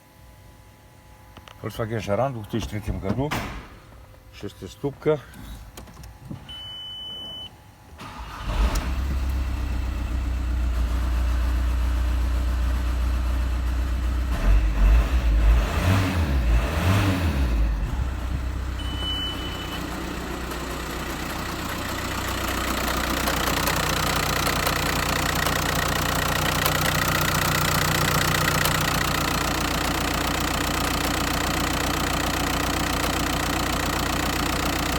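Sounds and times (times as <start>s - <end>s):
diesel engine starting and idling: 6.1s - 34.9s
short electronic beep: 6.5s - 7.5s, 18.8s - 20.0s
engine throttle blips: 14.4s - 21.4s.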